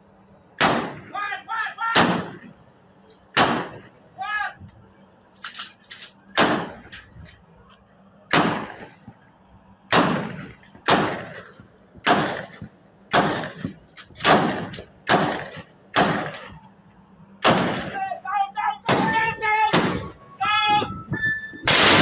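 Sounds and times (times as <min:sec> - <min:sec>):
gunshots ringing out: 0:00.6 - 0:01.2, 0:01.9 - 0:02.6, 0:03.3 - 0:04.0, 0:06.3 - 0:07.0, 0:08.3 - 0:09.1, 0:09.9 - 0:16.6, 0:17.4 - 0:20.2, 0:21.6 - 0:22.0.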